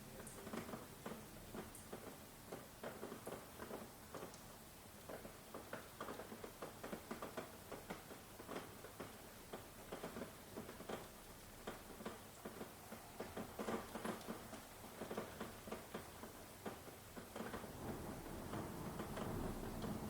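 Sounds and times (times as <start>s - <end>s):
rain drips and patters: 0.0s - 20.0s
low rumble of thunder: 17.6s - 20.0s.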